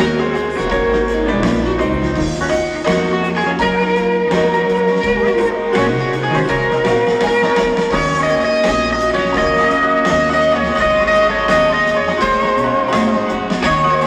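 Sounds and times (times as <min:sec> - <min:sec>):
guitar: 0:00.0 - 0:14.0
live band playing instrumental: 0:00.0 - 0:14.0.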